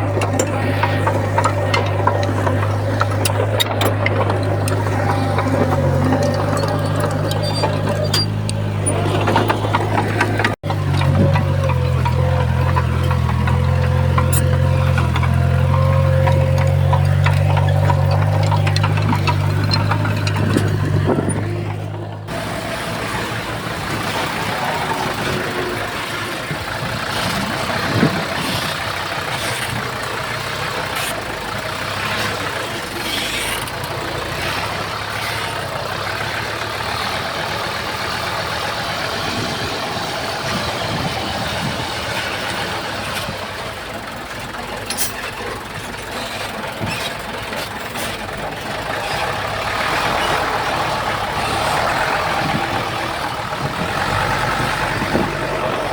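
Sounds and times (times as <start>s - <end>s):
heavy diesel machinery running: 0.0s - 55.9s.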